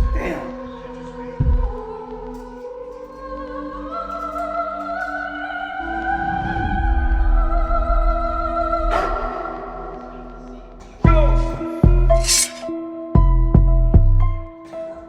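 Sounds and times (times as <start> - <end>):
held sung voices: 0.0 - 12.8.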